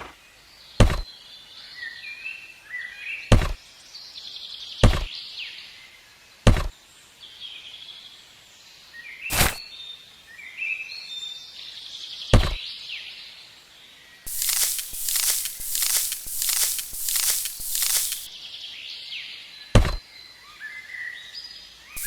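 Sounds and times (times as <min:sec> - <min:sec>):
sharp knocks: 0:00.8 - 0:01.0, 0:03.3 - 0:03.6
small birds chirping: 0:14.2 - 0:22.0.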